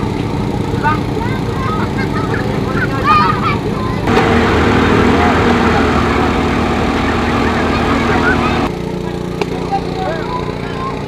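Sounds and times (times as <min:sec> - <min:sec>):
vehicle engine running: 0:00.0 - 0:11.0
birds chirping: 0:04.1 - 0:08.7.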